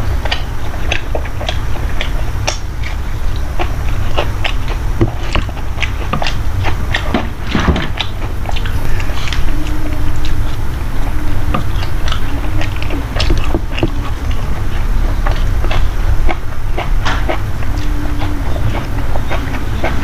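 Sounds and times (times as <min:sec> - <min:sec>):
person chewing food: 0:00.0 - 0:20.0.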